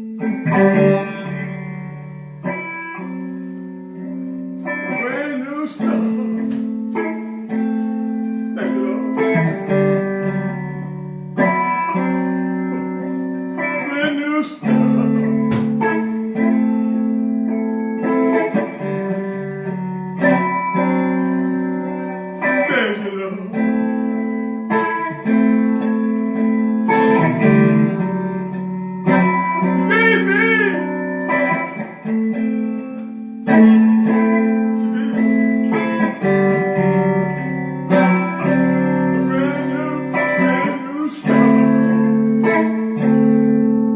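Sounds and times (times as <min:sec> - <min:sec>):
strummed guitar chords: 0:00.0 - 0:43.9
person singing: 0:04.8 - 0:07.2, 0:08.5 - 0:09.6, 0:12.7 - 0:16.3, 0:20.3 - 0:25.2, 0:29.6 - 0:31.9, 0:33.7 - 0:36.2, 0:38.3 - 0:42.6.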